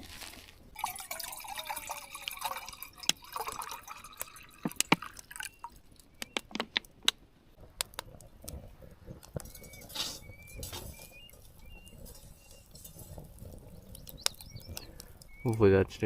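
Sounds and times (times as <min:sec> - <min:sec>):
water pouring into a pot: 0:00.8 - 0:05.8.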